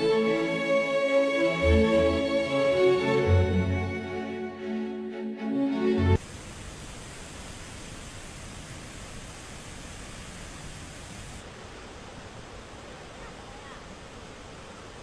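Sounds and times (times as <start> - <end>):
water rushing: 6.1 - 15.0.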